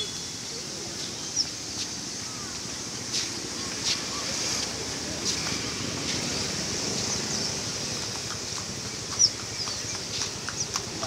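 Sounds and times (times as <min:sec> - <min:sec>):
songbirds chirping and whistling: 0:01.0 - 0:01.6, 0:08.9 - 0:10.8
high-pitched din of many birds: 0:06.9 - 0:11.0.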